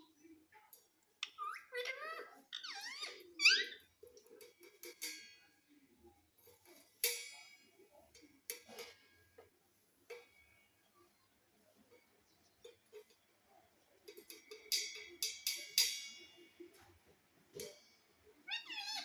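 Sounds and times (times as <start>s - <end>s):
parrot squawks: 1.2s - 3.8s, 18.5s - 19.0s.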